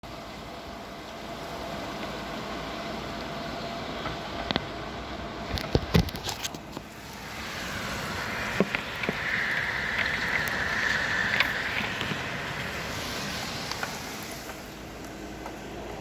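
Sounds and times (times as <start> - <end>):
heavy rain falling: 6.8 - 16.0.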